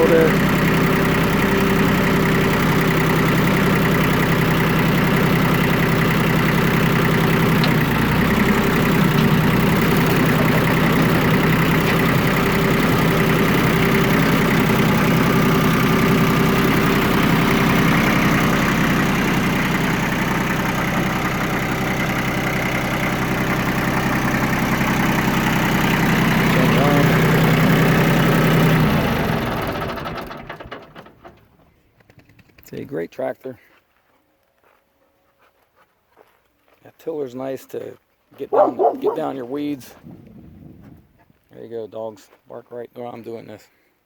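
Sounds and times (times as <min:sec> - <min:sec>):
tractor diesel engine running: 0:00.0 - 0:32.3, 0:38.5 - 0:41.0.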